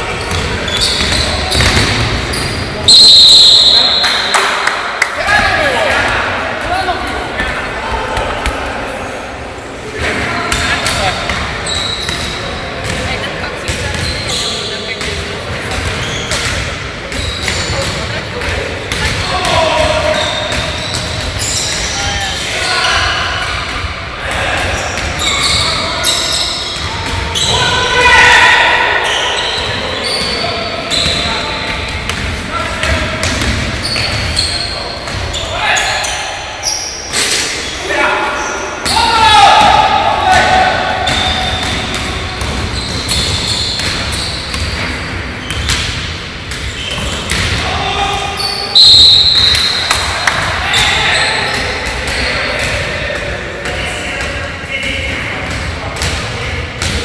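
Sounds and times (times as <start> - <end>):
shoes squeaking on floor: 0.0 - 4.1, 10.9 - 13.1, 13.7 - 15.0, 15.7 - 18.0, 19.9 - 23.1, 24.8 - 27.6, 29.0 - 32.0, 33.7 - 39.1, 41.0 - 45.8, 46.5 - 47.4
players' voices echoing: 0.0 - 57.0
basketball bouncing on court: 0.1 - 3.1, 10.5 - 14.4, 30.9 - 34.5, 39.6 - 47.6, 55.4 - 57.0
basketball bouncing on gym floor: 0.2 - 2.4, 40.4 - 47.6.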